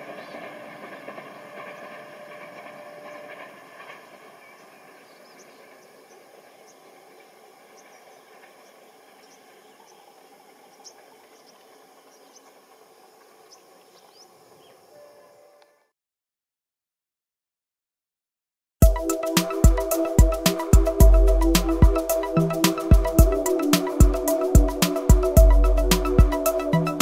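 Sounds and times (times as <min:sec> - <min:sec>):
train rumbling: 0:00.0 - 0:15.1, 0:18.8 - 0:27.0
insects and birds chirping: 0:00.0 - 0:15.8, 0:18.9 - 0:27.0.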